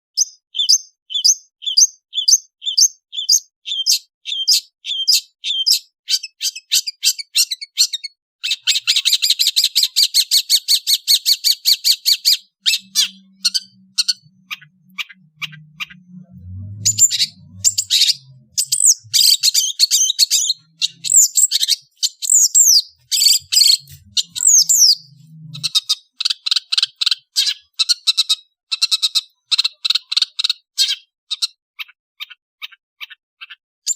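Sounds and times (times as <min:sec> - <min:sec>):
shrike singing: 0:12.1 - 0:25.9.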